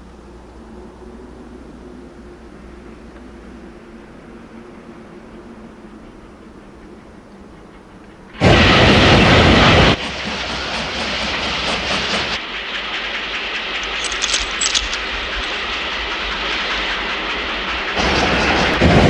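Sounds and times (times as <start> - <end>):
steam train passing: 0.0 - 19.0
wheels rumbling and clattering: 13.3 - 19.0
sharp metallic clicks: 13.8 - 15.7.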